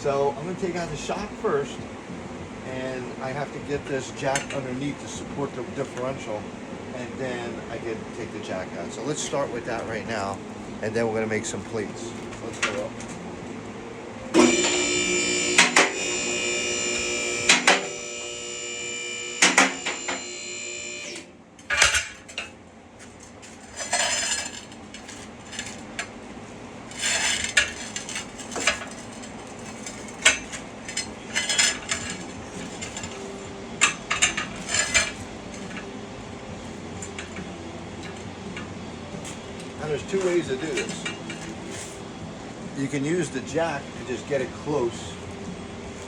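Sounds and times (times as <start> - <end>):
tools and metal parts clanking: 12.2 - 13.2, 21.6 - 26.2, 26.9 - 35.9, 37.0 - 42.0
vehicle lift motor humming: 14.3 - 21.4.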